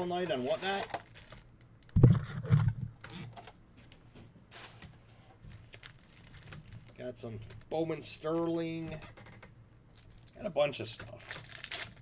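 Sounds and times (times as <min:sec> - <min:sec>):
packs rustling: 0:00.0 - 0:01.5, 0:04.6 - 0:07.6, 0:11.0 - 0:12.0.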